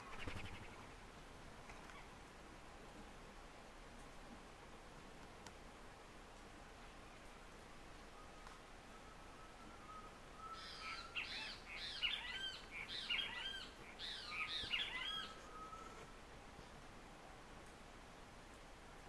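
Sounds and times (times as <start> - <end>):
faint steady high tone: 8.1 - 11.2, 14.6 - 16.2
bird chirping: 8.2 - 16.0.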